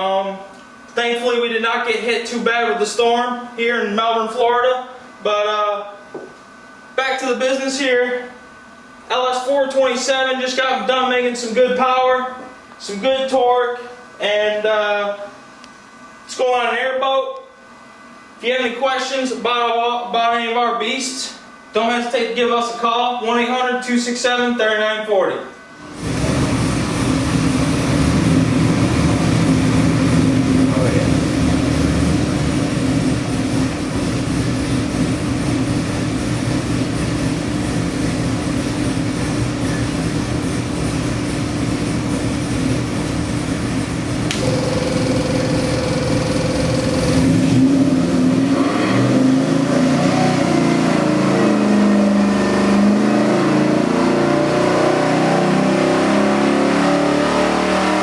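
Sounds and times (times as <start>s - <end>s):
engine running and revving: 26.0s - 58.0s.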